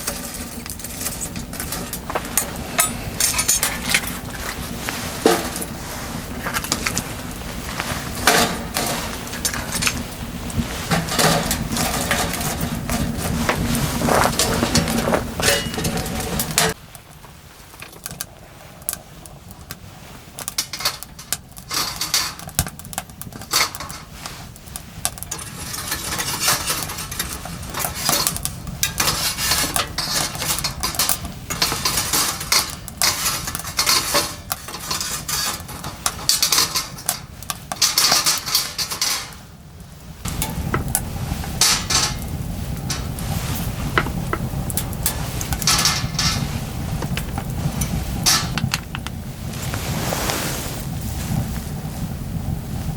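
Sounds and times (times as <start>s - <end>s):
scraping and stirring: 0.0s - 16.8s, 20.4s - 39.4s, 49.5s - 51.4s.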